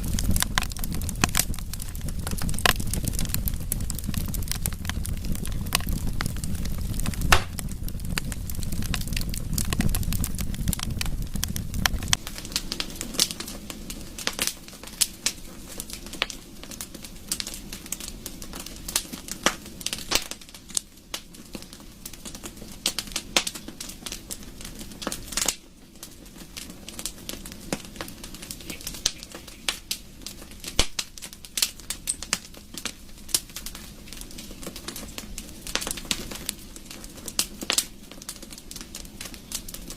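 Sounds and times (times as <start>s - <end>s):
low rumble: 0.0s - 12.2s
wood fire crackling: 0.0s - 39.9s.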